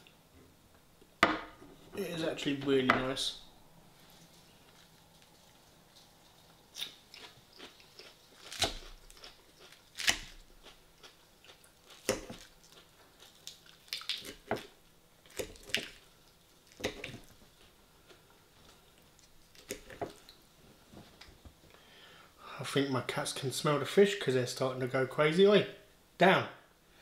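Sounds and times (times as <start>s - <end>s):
person chewing crisp salad: 4.0s - 20.4s.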